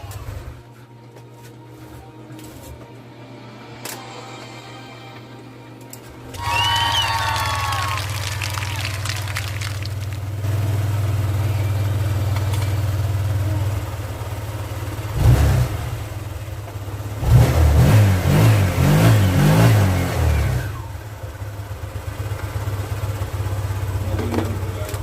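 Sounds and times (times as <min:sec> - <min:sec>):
scooter engine idling and revving: 0:00.0 - 0:00.6, 0:09.2 - 0:25.0.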